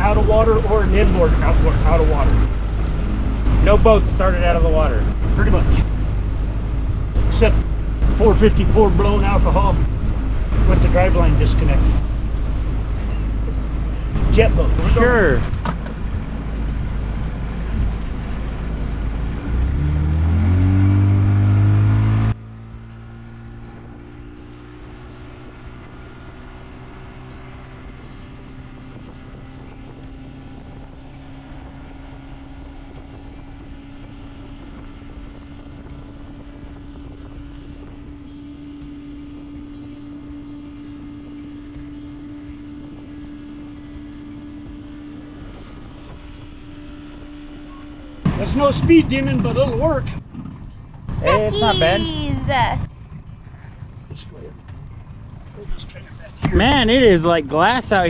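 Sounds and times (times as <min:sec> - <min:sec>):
wind and water rush: 0:00.0 - 0:22.3
motorboat engine: 0:00.0 - 0:58.0.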